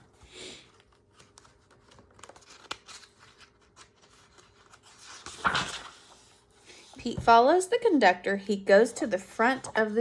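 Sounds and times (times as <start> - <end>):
paper pages rustling: 0.0 - 7.2.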